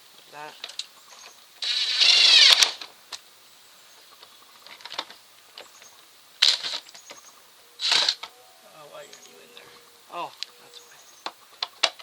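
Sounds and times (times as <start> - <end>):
cordless impact tool running: 1.6 - 2.8.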